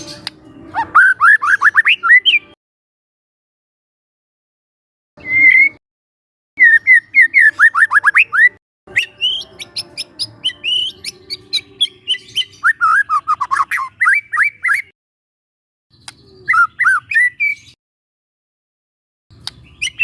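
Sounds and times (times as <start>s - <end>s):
bird whistling song: 0.0s - 2.6s, 5.2s - 5.8s, 6.6s - 14.9s, 15.9s - 17.8s, 19.4s - 20.0s
sharp bird clicking notes: 16.0s - 16.3s, 19.4s - 19.7s.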